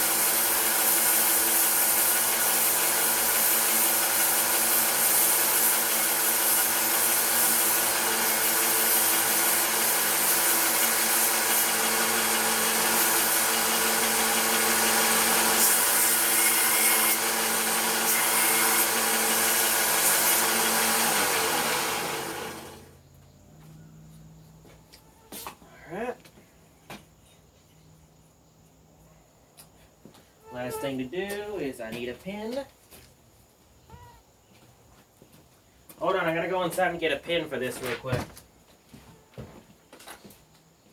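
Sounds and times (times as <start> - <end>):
electric power tool motor: 0.0 - 23.0.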